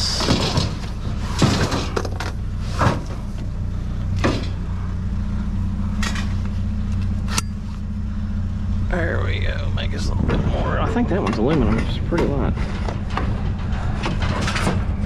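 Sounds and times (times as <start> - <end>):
scrap metal clanking: 0.0 - 3.4, 10.2 - 15.0
vehicle engine idling: 0.0 - 15.0.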